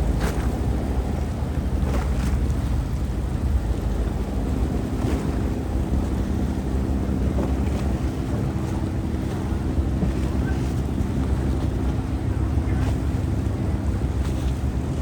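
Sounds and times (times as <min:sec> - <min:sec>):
boat engine running: 0:00.0 - 0:15.0
water rushing past hull: 0:00.0 - 0:15.0
wind buffeting microphone: 0:00.0 - 0:15.0.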